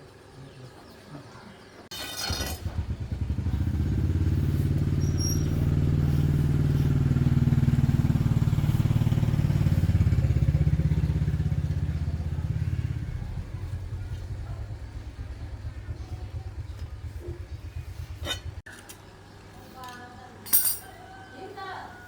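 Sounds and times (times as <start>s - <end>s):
small engine running: 1.9s - 18.6s.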